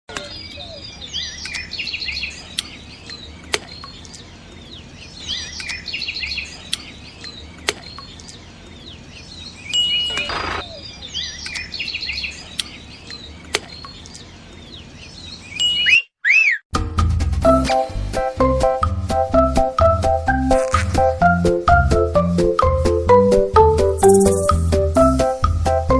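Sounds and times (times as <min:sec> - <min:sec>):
small birds chirping: 0:00.1 - 0:16.6, 0:24.0 - 0:25.4.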